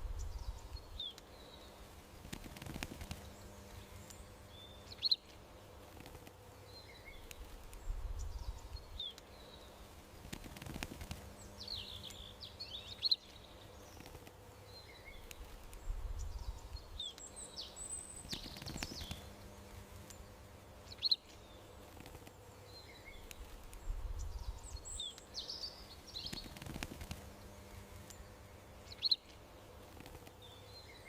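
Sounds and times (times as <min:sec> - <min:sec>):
soft low rumble: 0:00.0 - 0:01.0, 0:07.4 - 0:09.0, 0:15.3 - 0:17.1, 0:23.3 - 0:25.0
small birds chirping: 0:00.0 - 0:31.0.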